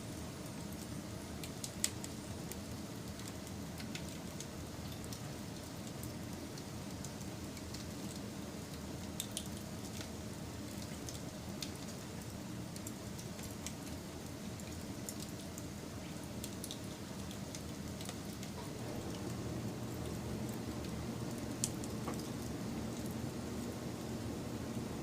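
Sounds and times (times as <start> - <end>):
wood fire crackling: 0.1 - 25.0.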